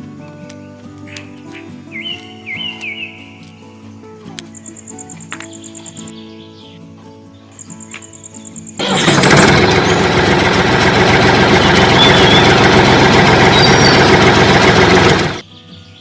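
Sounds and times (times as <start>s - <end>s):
loud motor-driven machine running: 8.8s - 15.4s.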